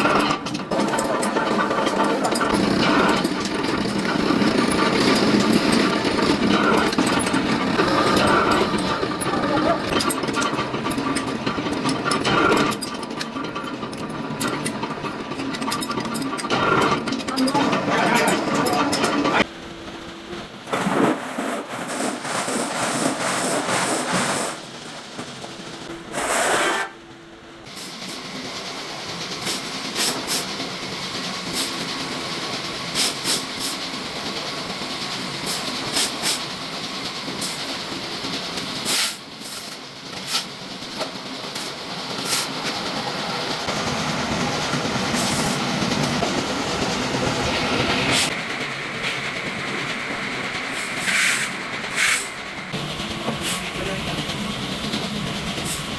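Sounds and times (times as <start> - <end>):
sharp clicks and clanks: 0.0 - 19.5
metalworking machinery hissing: 0.0 - 55.9.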